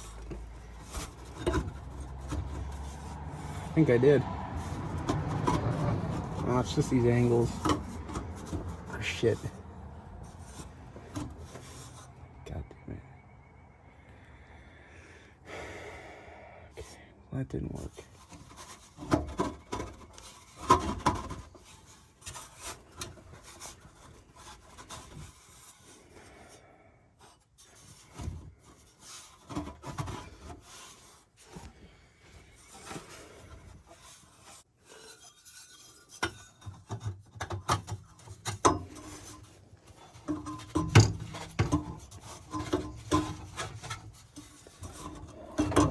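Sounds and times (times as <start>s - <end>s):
metal pipes knocking and clinking: 0.0s - 3.7s, 4.6s - 9.6s, 34.9s - 45.9s.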